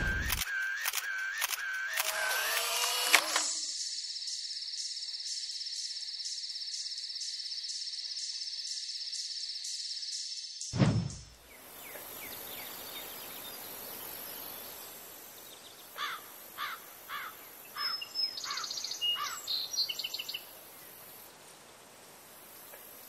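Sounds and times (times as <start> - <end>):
steady outdoor hiss: 0.0 - 23.0
bird chirps and trills: 11.4 - 21.0.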